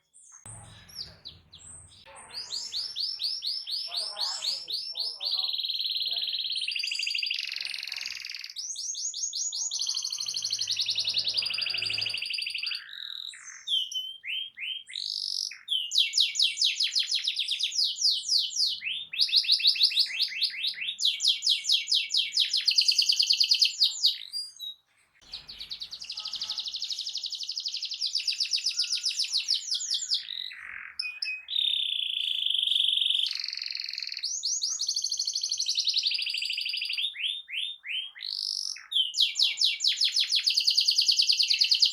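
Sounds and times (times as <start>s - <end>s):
canary singing fast trills: 0.0s - 41.9s.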